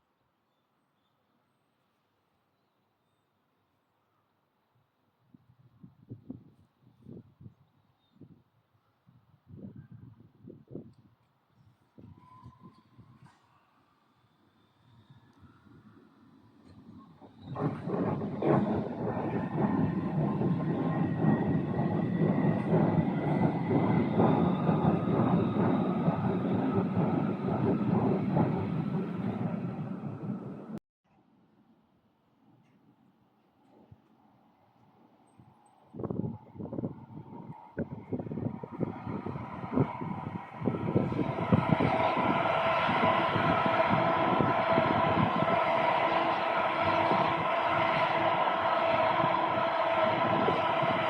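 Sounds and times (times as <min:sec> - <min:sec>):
train wheels clattering on rails: 0:16.6 - 0:30.8, 0:37.8 - 0:51.0
steady whining tones: 0:17.2 - 0:30.8, 0:37.8 - 0:51.0.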